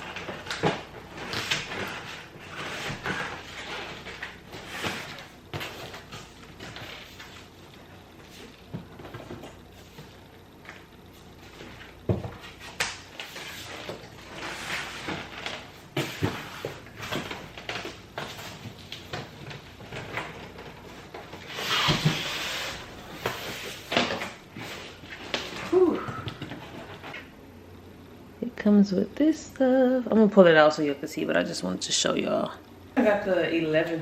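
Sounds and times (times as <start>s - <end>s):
rustling scrape: 12.5s - 17.4s, 21.4s - 25.6s.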